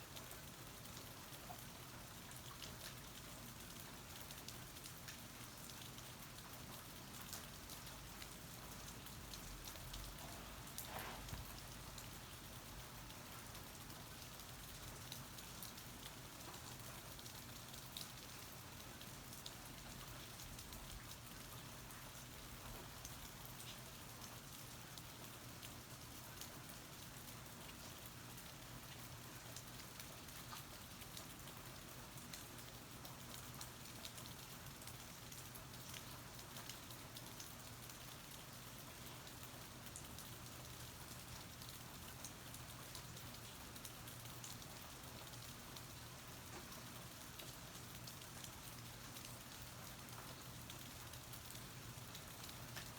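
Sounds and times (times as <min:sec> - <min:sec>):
steady rain falling: 0:00.0 - 0:52.9
sharp raindrop ticks: 0:29.6 - 0:52.9.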